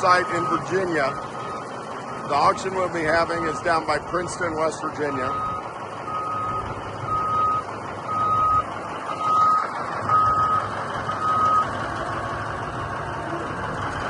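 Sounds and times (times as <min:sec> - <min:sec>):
backup alarm beeping: 0:00.0 - 0:01.8, 0:05.2 - 0:11.8
diesel engine rumbling: 0:00.0 - 0:14.0.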